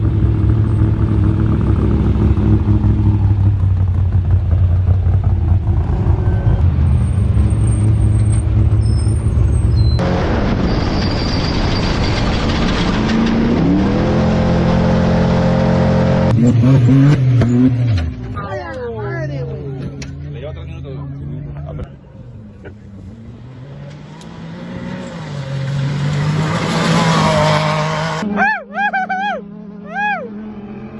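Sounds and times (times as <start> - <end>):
off-road vehicle engine droning: 0.0 - 10.8, 12.6 - 30.9.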